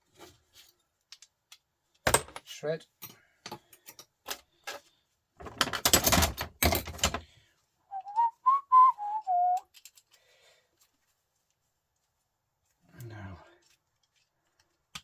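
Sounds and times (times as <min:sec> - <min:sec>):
metal parts clinking: 0:05.5 - 0:07.2
person whistling a tune: 0:07.9 - 0:09.6.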